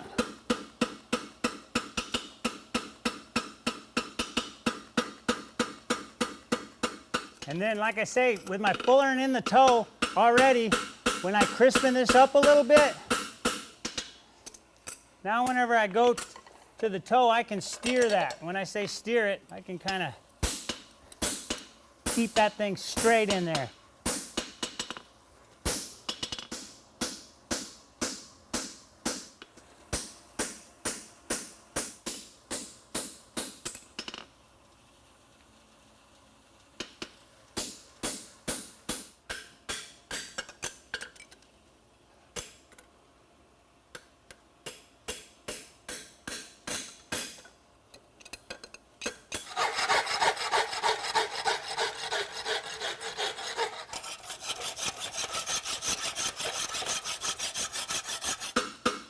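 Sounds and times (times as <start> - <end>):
hammer striking horseshoe on anvil: 8.4 - 14.2, 37.6 - 41.1, 42.4 - 42.7, 44.0 - 47.5
rasping scrape against steel: 49.4 - 58.7.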